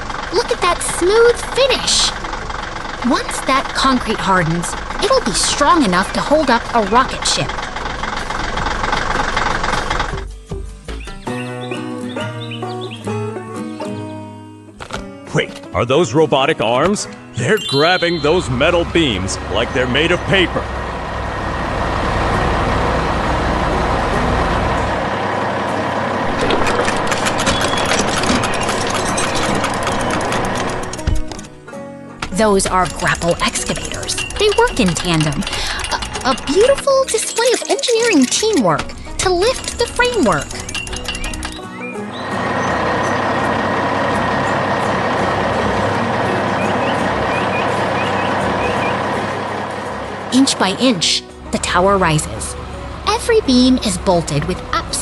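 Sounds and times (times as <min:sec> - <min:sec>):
heavy machine engine rumbling: 0:00.0 - 0:10.4, 0:17.4 - 0:55.0
metallic clicks and clanks: 0:26.2 - 0:31.6, 0:32.2 - 0:41.7.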